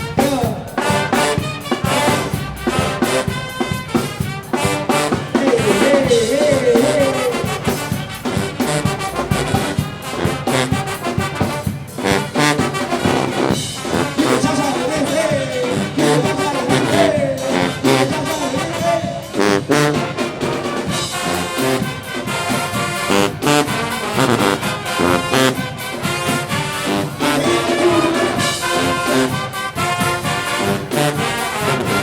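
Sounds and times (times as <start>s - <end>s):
driving drum beat: 0.0s - 32.0s
marching band playing: 0.0s - 32.0s
trombones and trumpets: 0.0s - 32.0s.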